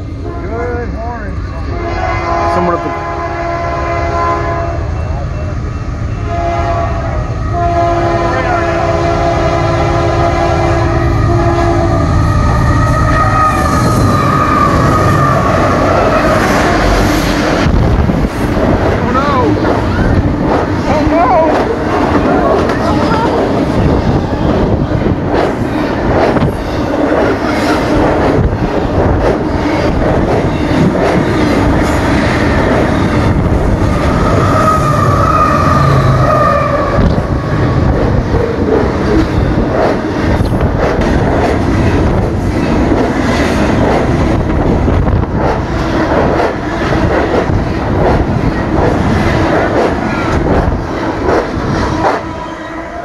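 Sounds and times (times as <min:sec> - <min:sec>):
train wheels rumbling on rail: 0:00.0 - 0:53.0
clickety-clack over rail joints: 0:17.0 - 0:33.8, 0:36.9 - 0:52.3
high whining tone: 0:33.6 - 0:39.6.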